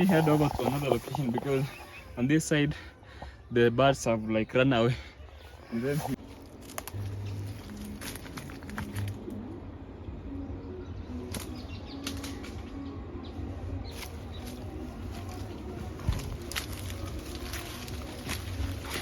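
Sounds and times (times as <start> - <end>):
twigs crackling underfoot: 0.0 - 2.3, 5.5 - 9.4, 11.2 - 12.8, 13.8 - 19.0
birds cooing: 0.0 - 2.4.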